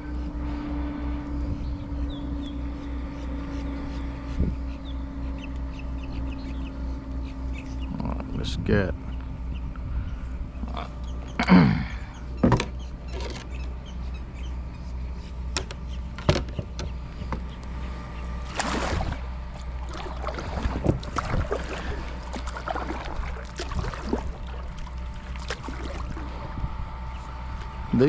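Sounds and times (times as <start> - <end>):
steady low hum: 0.0 - 28.0
water swishes: 17.8 - 27.9.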